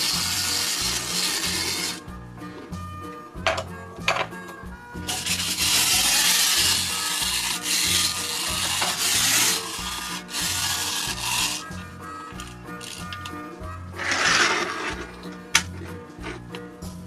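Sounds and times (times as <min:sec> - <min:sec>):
toy scraping against playset: 0:00.0 - 0:02.8, 0:05.1 - 0:16.6
background music: 0:00.0 - 0:17.0.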